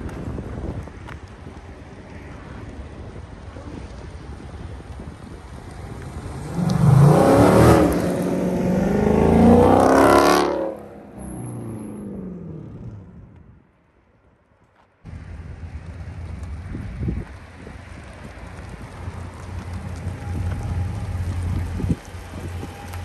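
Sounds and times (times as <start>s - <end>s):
car engine accelerating hard: 6.0s - 13.4s, 15.1s - 23.0s.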